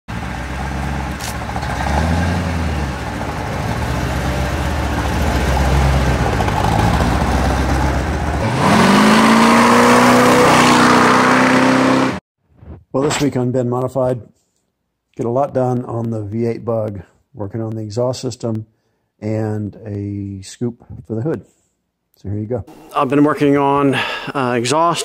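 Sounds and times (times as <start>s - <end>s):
car engine idling and revving: 0.1s - 12.2s.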